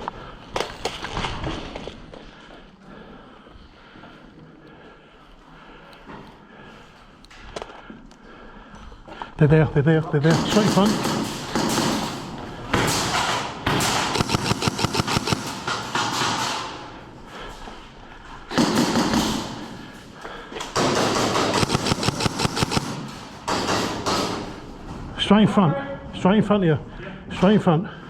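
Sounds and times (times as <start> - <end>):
airsoft guns firing full-auto: 10.2 - 17.7, 18.4 - 24.7.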